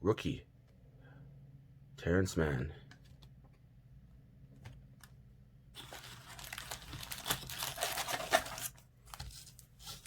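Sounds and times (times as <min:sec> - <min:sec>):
foil wrapper crinkling: 0:05.8 - 0:10.0.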